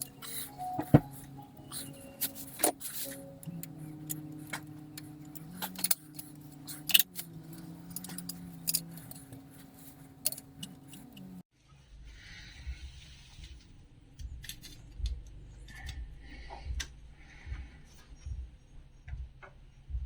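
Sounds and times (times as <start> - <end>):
quiet background music: 0.0 - 20.0
metallic clinks of hand tools: 2.2 - 11.4.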